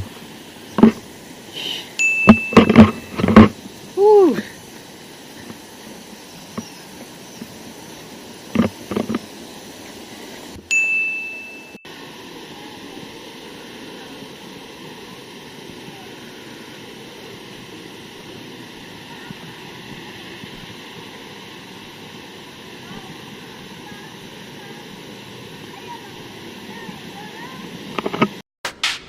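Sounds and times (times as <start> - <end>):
waterfall rushing: 0.0 - 28.4
bright ding: 2.0 - 3.2, 10.7 - 11.8.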